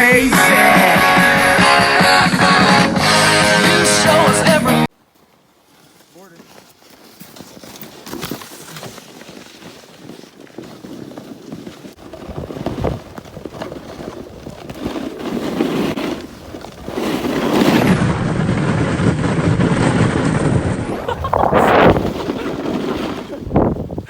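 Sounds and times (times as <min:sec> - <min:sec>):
wind rushing over microphone: 0:16.8 - 0:24.0.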